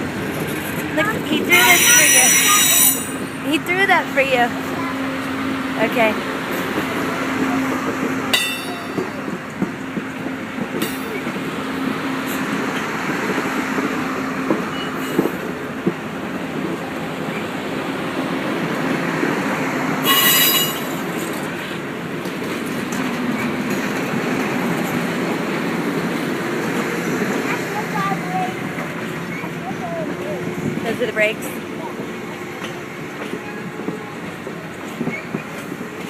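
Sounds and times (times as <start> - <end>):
train wheels rumbling on rail: 0.0 - 36.0
high-pitched wheel squeals: 1.5 - 3.2, 20.0 - 21.0
clicks of train wheels: 6.4 - 19.0, 20.0 - 36.0.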